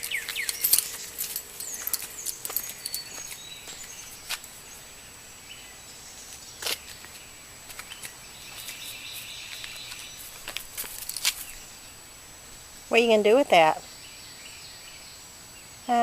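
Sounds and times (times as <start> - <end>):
scattered clicks and rustles: 0.0 - 4.6, 7.7 - 11.6
faint high bird chirps: 0.0 - 4.9.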